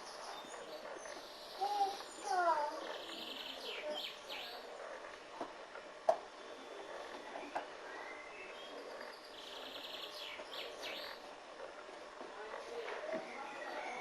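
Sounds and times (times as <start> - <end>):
faint birdsong: 0.0 - 5.1, 6.4 - 11.5.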